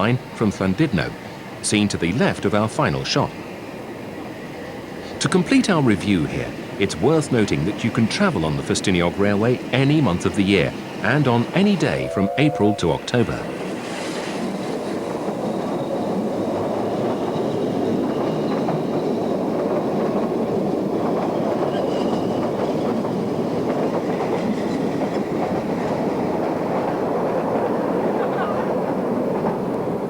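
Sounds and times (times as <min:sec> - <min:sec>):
train rumbling and rattling on rails: 0:00.0 - 0:30.0
faint high whining tones: 0:10.7 - 0:13.8.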